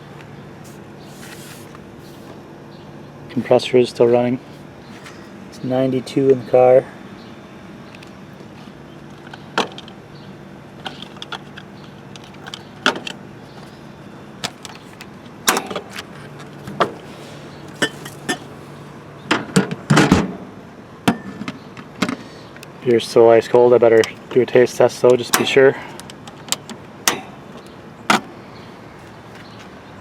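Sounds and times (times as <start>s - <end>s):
fridge compressor humming: 0.0s - 30.0s
handling clicks and knocks: 7.9s - 10.0s, 10.8s - 13.8s, 14.4s - 17.0s, 23.9s - 28.3s.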